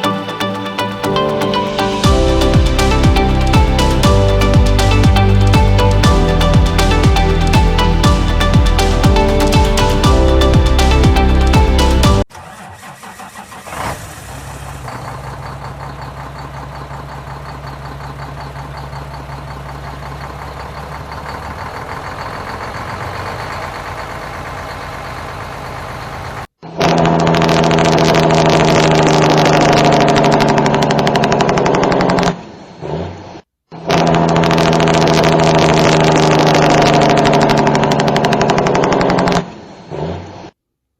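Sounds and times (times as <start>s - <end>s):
diesel truck engine idling: 1.5s - 26.4s
engine brake blatting: 12.3s - 26.2s.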